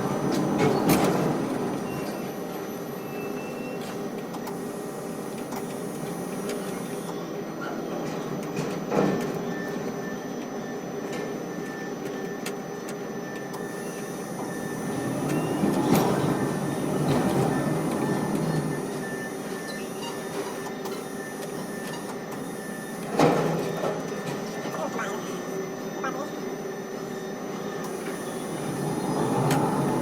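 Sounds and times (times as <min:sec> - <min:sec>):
crane machinery rumbling: 0:14.3 - 0:20.5, 0:27.9 - 0:30.0.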